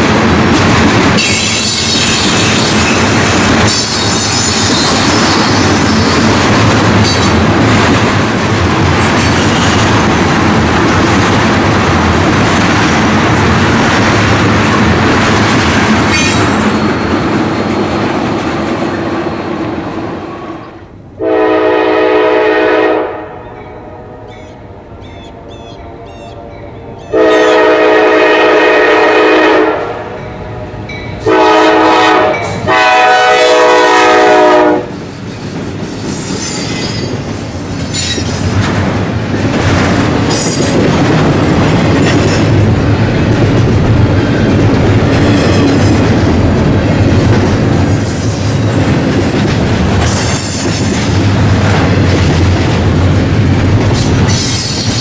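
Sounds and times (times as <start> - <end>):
train rumbling past: 0.0 - 55.0
train air horn blasts: 20.5 - 24.4, 25.4 - 34.9.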